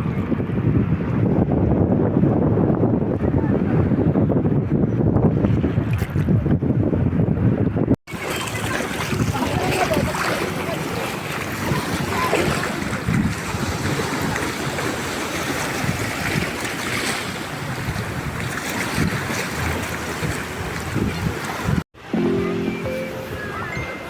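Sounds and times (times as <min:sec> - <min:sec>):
wind buffeting microphone: 0:00.0 - 0:21.8
surf rushing: 0:08.1 - 0:24.0.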